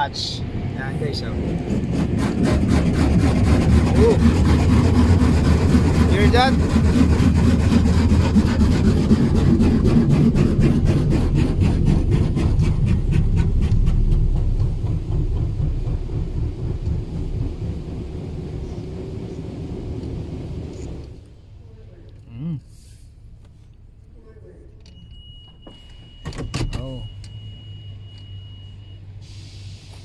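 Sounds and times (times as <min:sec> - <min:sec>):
car wash spraying high-pressure water: 0:00.0 - 0:21.3.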